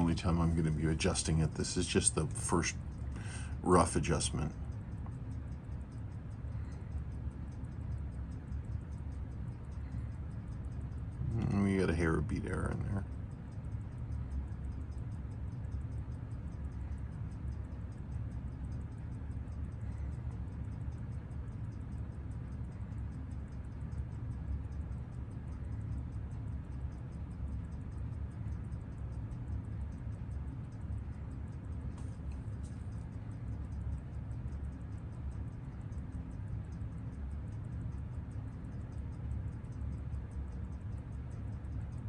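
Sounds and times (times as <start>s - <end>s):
steady low hum: 0.0s - 42.0s
watch movement ticking: 0.0s - 42.0s.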